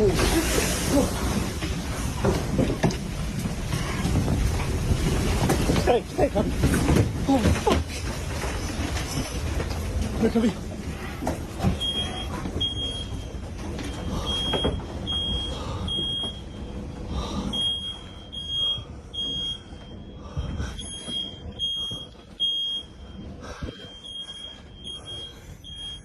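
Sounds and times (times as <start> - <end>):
low wind rumble: 0.0 - 26.0
smoke alarm beeping: 11.7 - 16.9, 17.5 - 20.2, 20.8 - 26.0.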